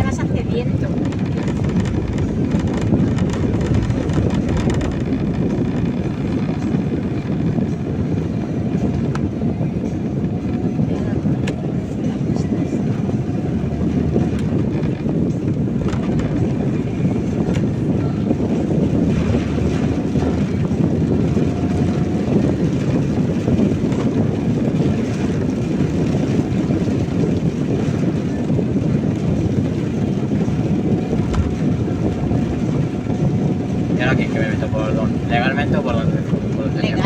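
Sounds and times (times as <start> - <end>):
rain on car: 0.0 - 9.5, 10.5 - 37.0
tyres on wet road: 0.0 - 37.0
wind: 0.0 - 37.0.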